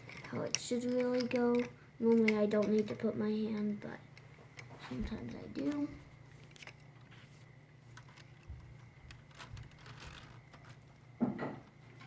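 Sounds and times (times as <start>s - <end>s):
plastic pieces clicking: 0.0s - 3.7s, 7.9s - 11.0s
low steady hum: 0.0s - 12.0s.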